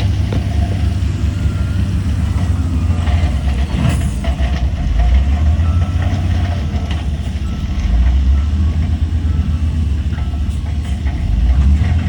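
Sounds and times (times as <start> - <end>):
heavy diesel engines rumbling: 0.0 - 12.0
reversing alarm beeping: 1.2 - 4.3, 5.1 - 11.0.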